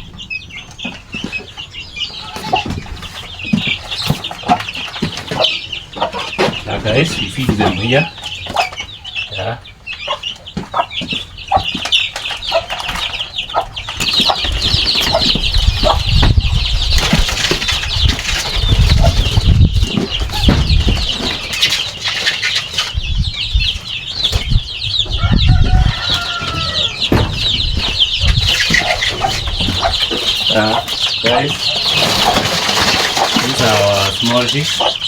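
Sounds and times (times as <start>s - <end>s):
chicks peeping: 0.0s - 35.0s
dull rumbling and fluttering: 13.8s - 21.4s, 22.9s - 30.4s
hen calling: 23.4s - 32.5s.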